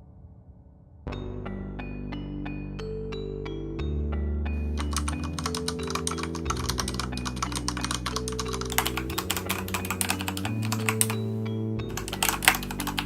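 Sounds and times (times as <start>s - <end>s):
background music with low notes: 0.0s - 13.0s
mechanical keyboard typing: 4.7s - 11.2s, 11.9s - 13.0s.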